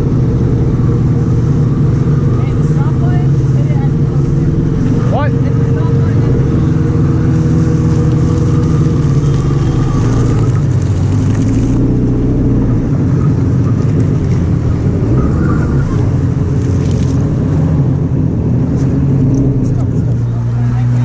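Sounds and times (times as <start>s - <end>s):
jet ski engine running: 0.0s - 21.0s.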